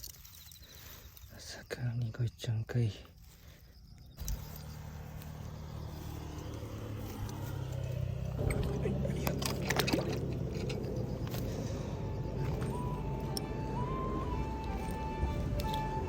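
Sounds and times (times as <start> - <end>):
engine droning: 4.2 - 16.0.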